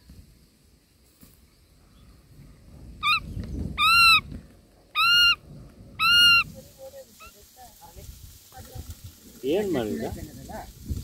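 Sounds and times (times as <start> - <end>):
bird nestling calling: 3.0 - 4.3, 5.0 - 5.4, 6.0 - 6.6.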